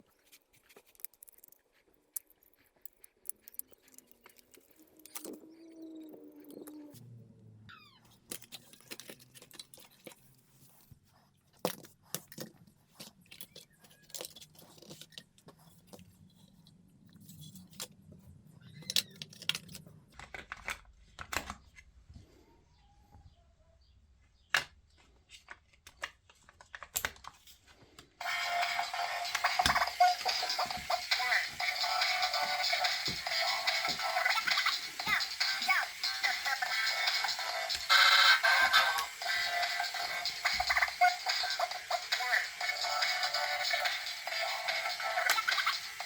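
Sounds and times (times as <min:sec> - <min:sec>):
plastic toy parts clicking: 0:00.8 - 0:05.5, 0:08.3 - 0:10.3, 0:18.7 - 0:21.6, 0:24.5 - 0:27.4.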